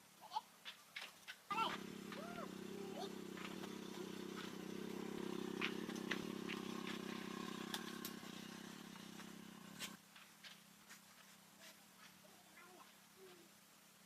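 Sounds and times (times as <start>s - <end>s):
small motor humming: 1.6s - 10.0s.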